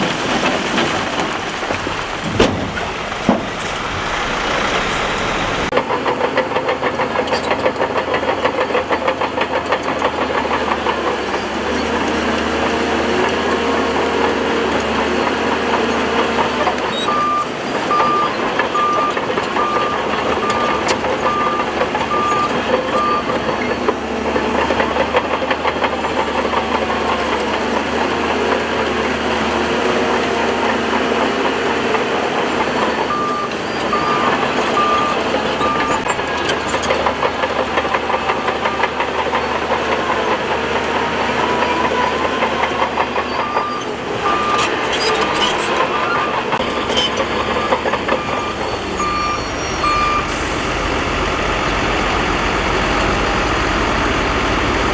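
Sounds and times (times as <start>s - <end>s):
bulldozer engine under load: 0.0s - 54.9s
reversing alarm beeping: 16.9s - 23.4s, 32.9s - 36.2s, 43.3s - 45.4s, 46.0s - 51.0s.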